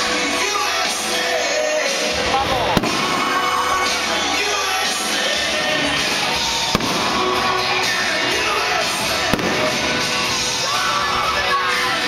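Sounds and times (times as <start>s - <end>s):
music playing: 0.0s - 12.0s
firework bangs: 2.4s - 10.7s.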